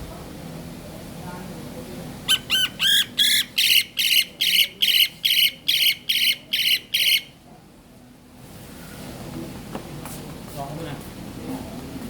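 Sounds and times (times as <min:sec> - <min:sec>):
bird squawking: 0:02.3 - 0:07.4.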